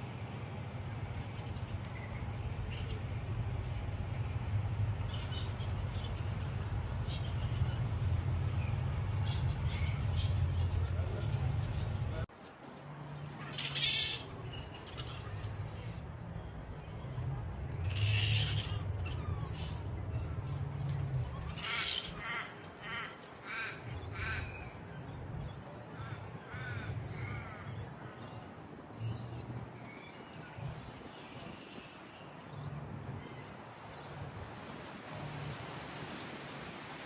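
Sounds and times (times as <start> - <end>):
harsh squawking animal calls: 13.4 - 15.4, 17.8 - 19.5.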